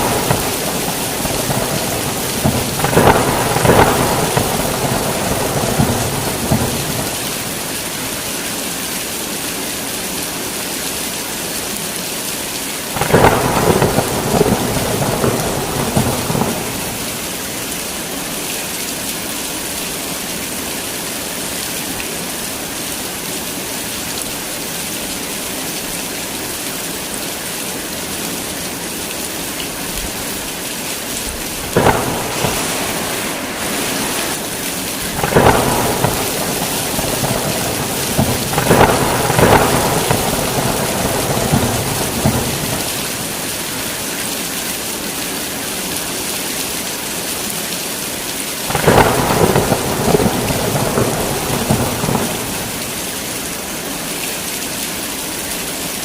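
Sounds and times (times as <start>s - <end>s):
thunder rumbling: 0.0s - 7.8s, 13.0s - 17.4s, 31.2s - 43.8s, 48.7s - 53.1s
heavy rain falling: 0.0s - 56.0s.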